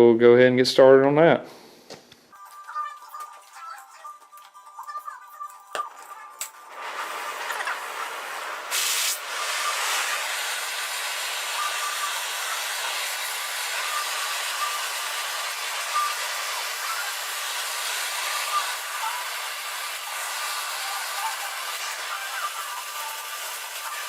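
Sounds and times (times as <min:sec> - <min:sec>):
gas torch flame hissing: 0:06.4 - 0:24.0.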